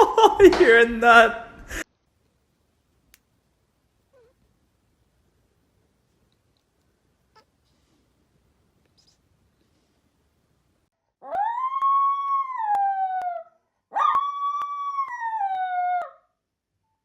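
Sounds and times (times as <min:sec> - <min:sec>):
dog howling: 0:11.2 - 0:16.3.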